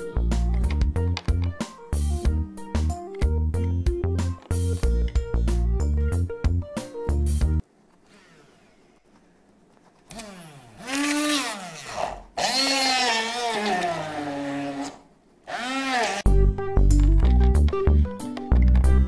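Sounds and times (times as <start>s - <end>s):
blender motor whining: 10.1s - 16.3s.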